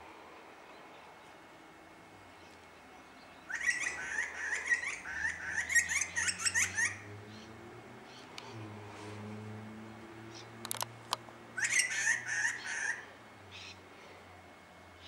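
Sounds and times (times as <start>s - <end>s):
birds chattering: 2.3s - 8.7s, 11.6s - 13.8s.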